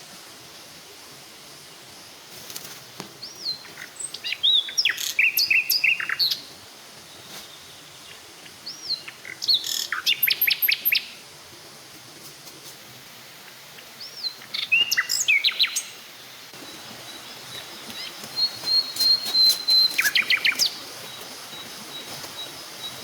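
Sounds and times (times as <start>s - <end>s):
steady hiss: 0.0s - 23.0s
birds chirping and trilling: 3.2s - 6.5s, 7.2s - 11.2s, 13.4s - 23.0s
bird whistle: 18.4s - 20.7s.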